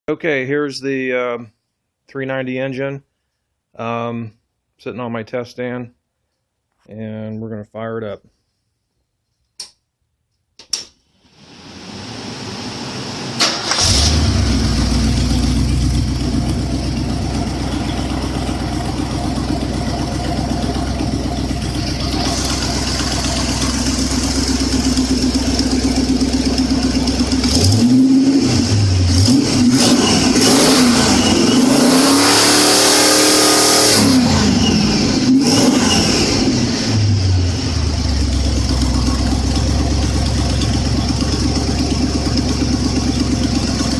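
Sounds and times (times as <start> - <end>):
engine cranking and starting: 13.4 - 28.0
engine running and revving: 13.7 - 43.9.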